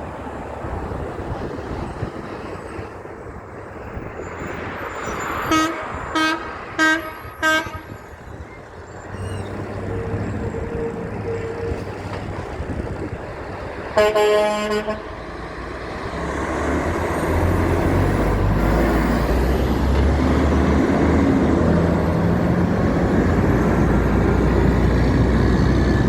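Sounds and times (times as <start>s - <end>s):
road traffic noise: 0.0s - 26.0s
truck horn toots: 5.4s - 8.1s, 9.4s - 11.9s, 14.0s - 15.2s.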